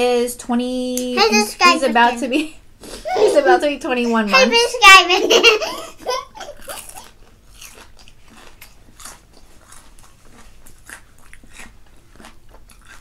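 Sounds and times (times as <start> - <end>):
crunching fried chicken: 6.4 - 13.0.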